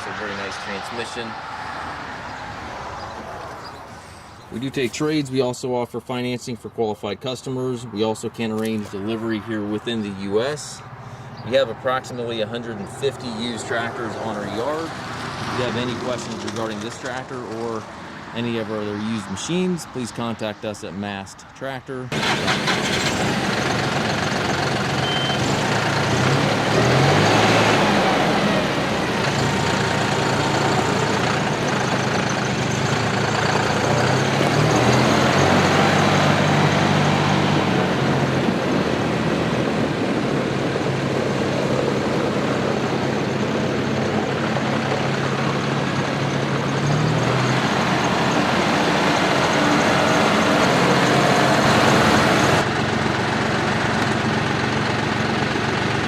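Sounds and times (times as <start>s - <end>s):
tractor diesel engine running: 22.1s - 56.0s.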